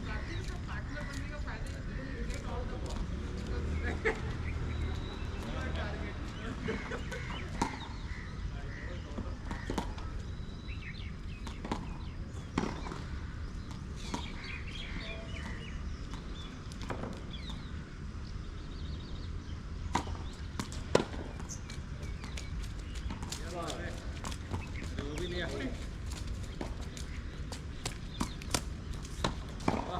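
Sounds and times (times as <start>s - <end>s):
tennis balls struck and bouncing: 4.1s - 8.1s, 8.9s - 10.3s, 11.1s - 17.9s, 19.8s - 29.9s.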